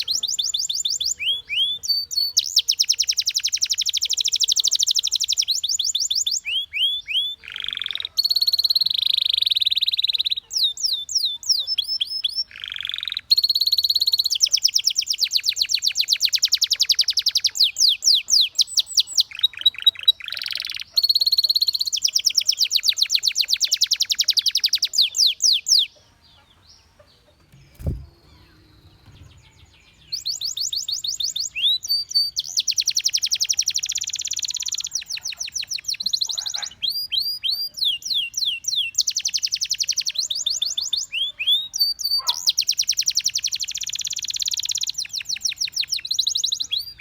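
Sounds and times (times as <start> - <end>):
canary singing trills: 0.0 - 47.0.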